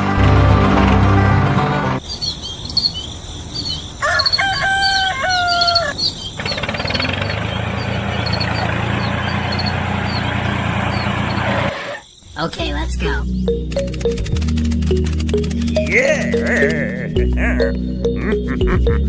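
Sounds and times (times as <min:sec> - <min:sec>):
small birds chirping: 0:02.0 - 0:19.0
rooster crowing: 0:04.0 - 0:06.0.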